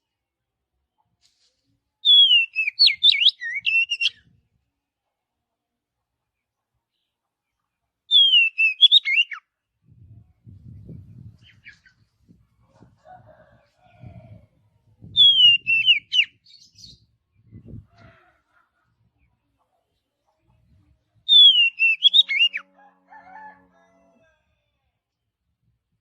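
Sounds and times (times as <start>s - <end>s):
songbird singing: 2.0s - 4.3s, 8.1s - 9.5s, 15.0s - 17.9s, 20.6s - 22.7s.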